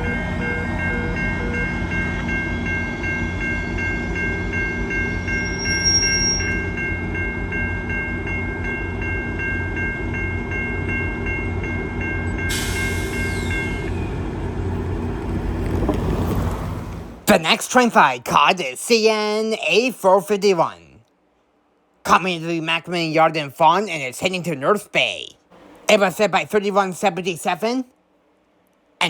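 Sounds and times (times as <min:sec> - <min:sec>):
railway crossing bell ringing: 0:00.0 - 0:14.6
passing train rumble: 0:00.0 - 0:17.9.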